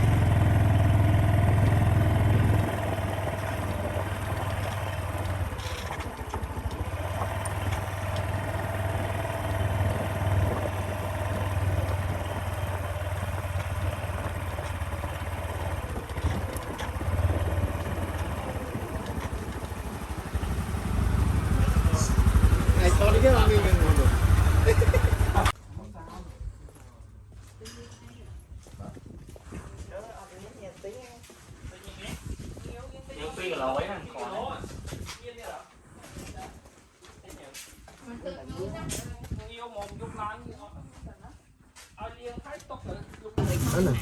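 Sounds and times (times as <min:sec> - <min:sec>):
small motorcycle engine running: 0:00.0 - 0:25.6, 0:43.4 - 0:44.0.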